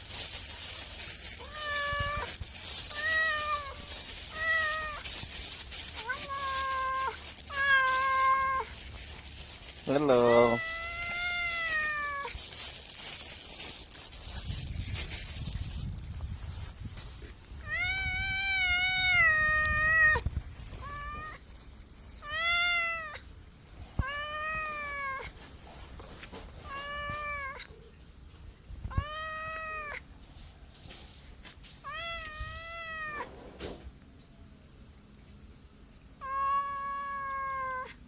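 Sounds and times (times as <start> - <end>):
cat meowing: 0.7 - 12.9, 17.6 - 21.5, 22.2 - 23.2, 24.0 - 25.4, 26.6 - 27.8, 28.9 - 30.0, 31.8 - 33.4, 36.2 - 38.0.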